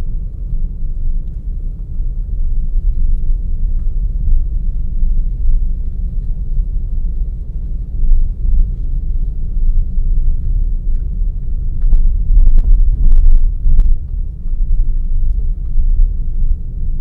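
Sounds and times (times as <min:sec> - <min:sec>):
car engine and tyres rumbling: 0:00.1 - 0:17.0.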